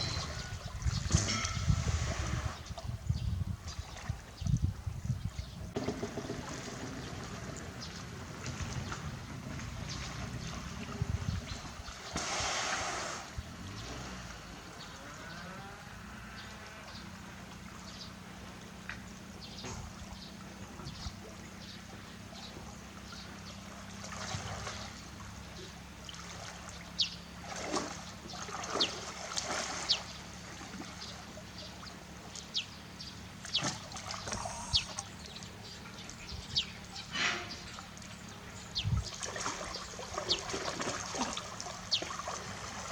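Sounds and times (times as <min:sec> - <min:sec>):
water splashing and trickling: 0:00.0 - 0:15.8, 0:16.4 - 0:42.9
steady low hum: 0:30.3 - 0:40.2.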